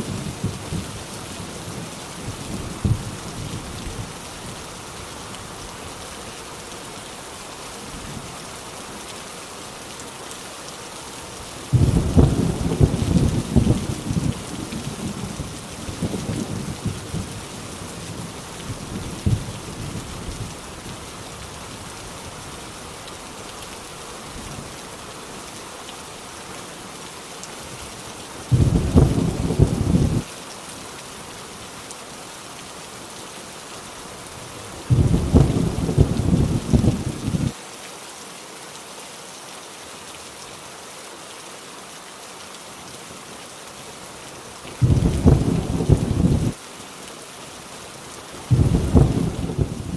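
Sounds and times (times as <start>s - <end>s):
rain drumming on a tin roof: 0.0s - 49.9s
rolling thunder: 11.7s - 17.4s, 28.5s - 30.2s, 34.9s - 37.5s, 44.8s - 46.6s, 48.5s - 49.9s.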